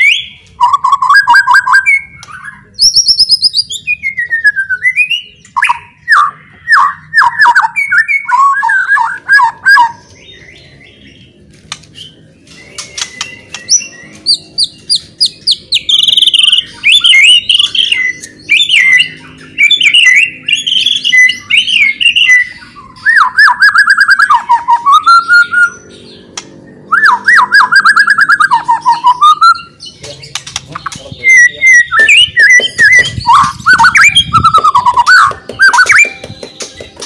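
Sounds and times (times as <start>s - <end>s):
songbird singing whistled phrases: 0.0s - 11.0s, 11.9s - 36.9s
bird clicking chatter: 30.3s - 31.1s.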